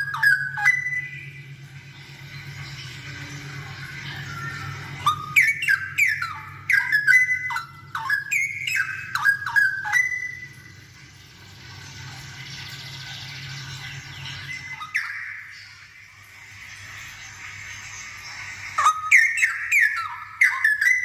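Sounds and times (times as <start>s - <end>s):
bird singing whistled notes: 0.0s - 1.5s, 3.4s - 10.7s, 13.8s - 15.8s, 18.8s - 21.0s.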